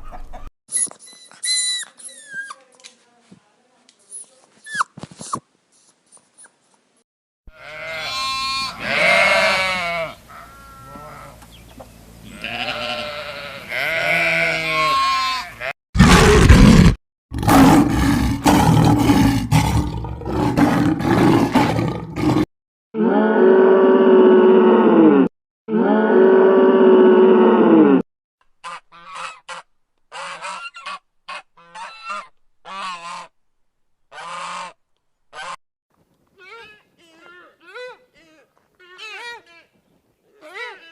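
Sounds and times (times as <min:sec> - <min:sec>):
farm animal calls: 0:07.6 - 0:15.7, 0:28.6 - 0:33.3, 0:34.1 - 0:35.6, 0:36.4 - 0:40.9.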